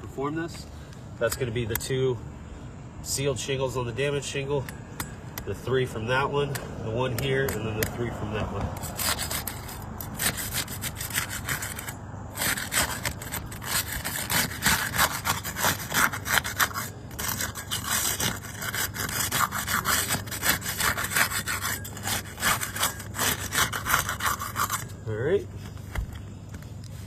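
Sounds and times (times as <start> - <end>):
putty knife scraping shingles: 7.1 - 25.0.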